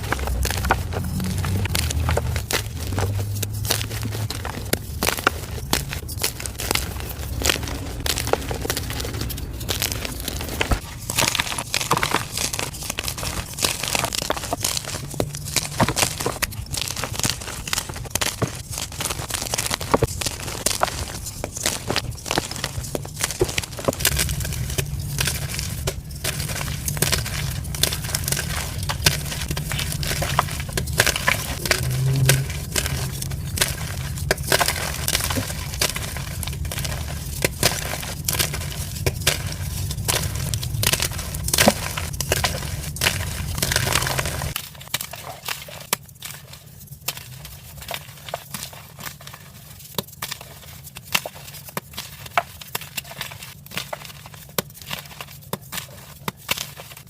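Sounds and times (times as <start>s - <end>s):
low hum: 0.0s - 18.2s, 19.7s - 44.6s
chalk crunching: 0.0s - 57.0s.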